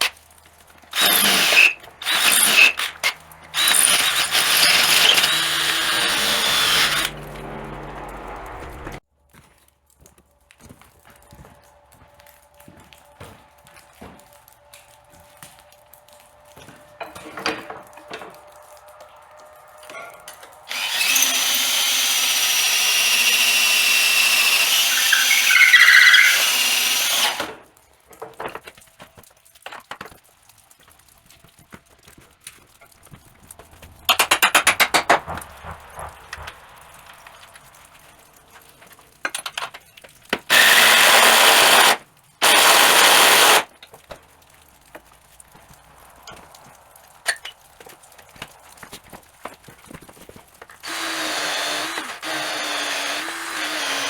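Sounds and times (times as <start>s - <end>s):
power drill boring: 0.9s - 7.3s, 20.6s - 27.6s, 40.5s - 43.7s, 50.8s - 54.0s
rapid rattling burst of tool: 0.9s - 7.3s, 20.7s - 27.6s, 33.9s - 38.2s, 40.5s - 43.7s, 50.8s - 54.0s.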